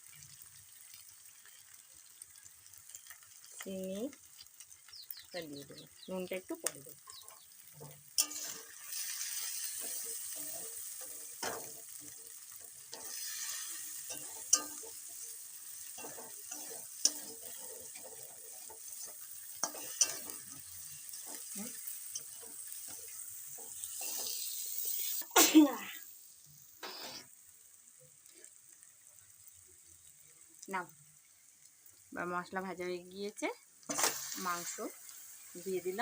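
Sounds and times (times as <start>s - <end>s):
spice paste sizzling in oil: 0.0s - 36.0s
spatula stirring: 7.0s - 25.3s.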